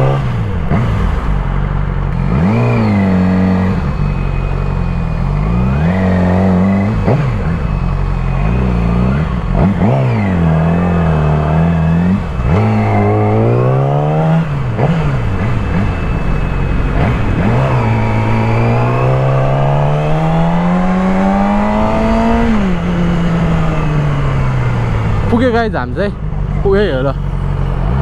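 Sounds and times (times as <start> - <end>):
motorcycle engine accelerating: 0.0 - 28.0
wind on microphone: 12.2 - 25.4.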